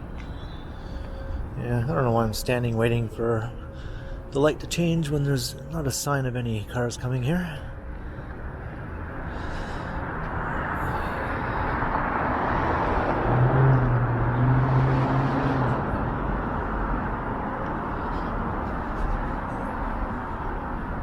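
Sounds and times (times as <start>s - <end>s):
vehicle passing: 7.7s - 21.0s.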